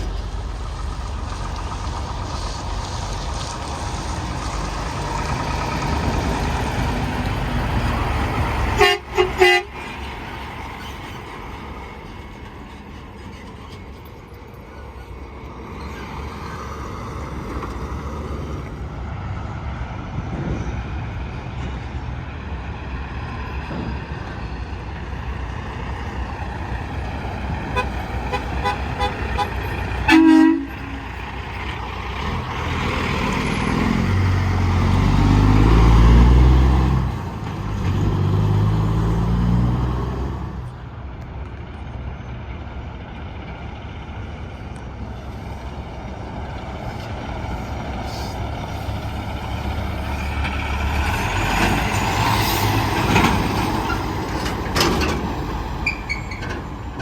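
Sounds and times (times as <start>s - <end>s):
heavy trucks passing: 0.0s - 57.0s
interstate traffic: 0.0s - 57.0s
truck horn toot: 8.7s - 9.9s, 27.7s - 31.2s.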